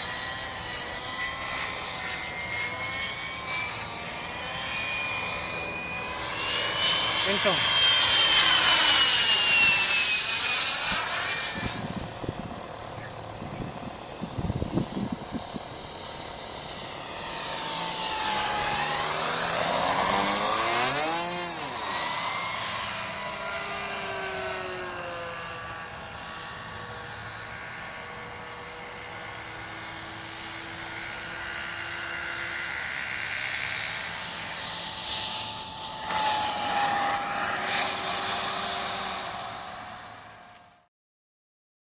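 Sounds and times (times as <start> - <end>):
model jet turbine whine: 0.0 - 40.9.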